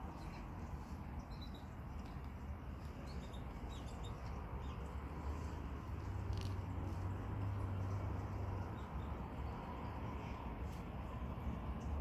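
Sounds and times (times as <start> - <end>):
high bird chirps: 0.0 - 5.5
low steady rumble: 0.0 - 12.0.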